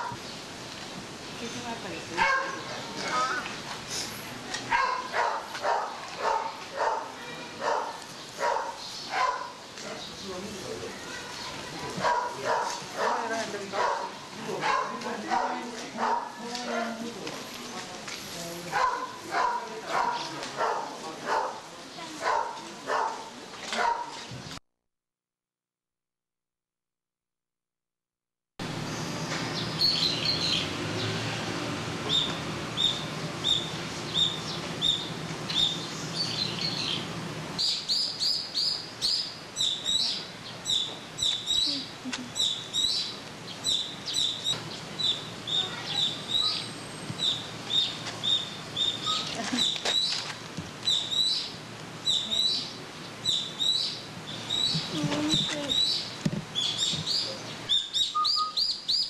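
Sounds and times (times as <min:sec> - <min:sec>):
small birds chirping: 0:00.0 - 0:15.4, 0:28.9 - 0:31.2, 0:32.1 - 0:59.0.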